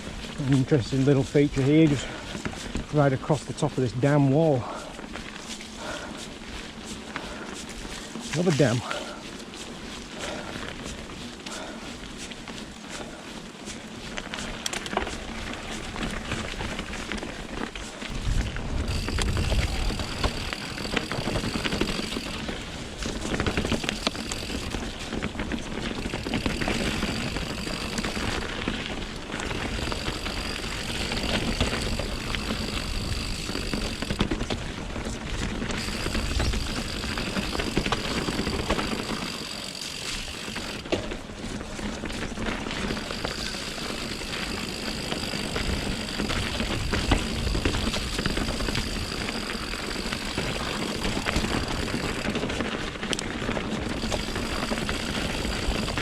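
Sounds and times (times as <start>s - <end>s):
bike tyres on rocky trail: 0.0s - 56.0s
wind rumble on microphone: 18.0s - 20.6s.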